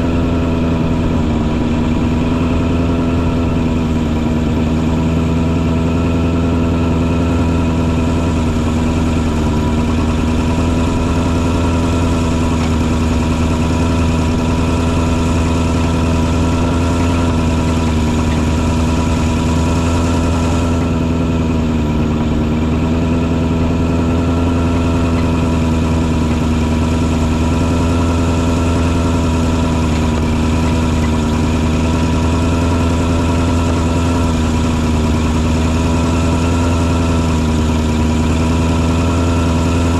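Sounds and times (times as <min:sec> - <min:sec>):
fogger engine droning: 0:00.0 - 0:39.9.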